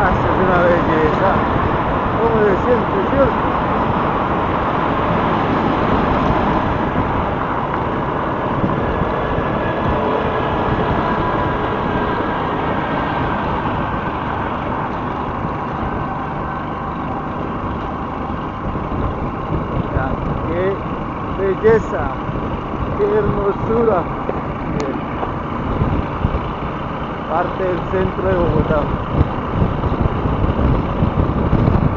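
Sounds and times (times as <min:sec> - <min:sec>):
motorcycle engine running: 0:00.0 - 0:31.9
road and wind noise: 0:00.0 - 0:31.9.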